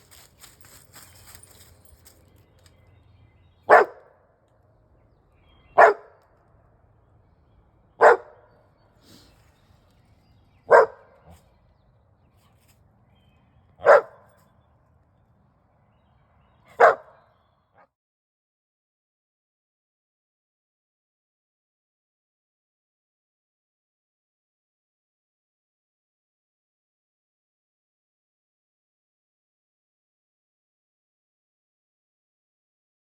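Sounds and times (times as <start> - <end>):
dog barking: 3.7 - 4.1, 5.7 - 6.2, 8.0 - 8.5, 10.7 - 11.4, 13.8 - 14.3, 16.7 - 17.2.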